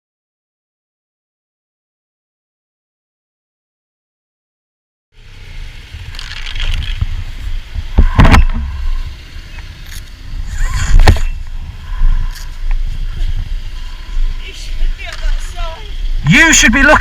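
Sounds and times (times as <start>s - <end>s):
motorcycle engine rumble: 5.2s - 16.9s
loud noisy bursts: 5.2s - 17.0s
wind on microphone: 5.6s - 16.3s.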